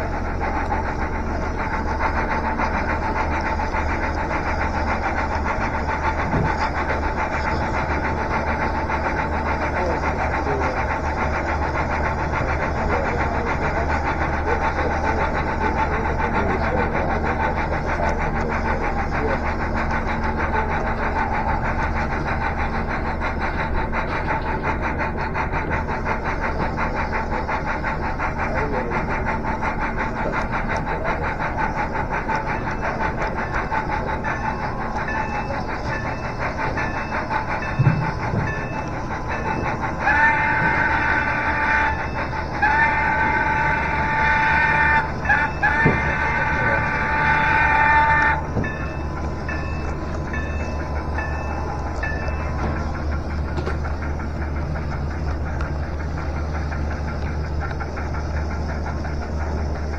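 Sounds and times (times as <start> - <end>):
model train fast clicking: 0.0 - 59.9
locomotive whistle blasts: 30.8 - 54.6
steady hum: 48.0 - 59.9.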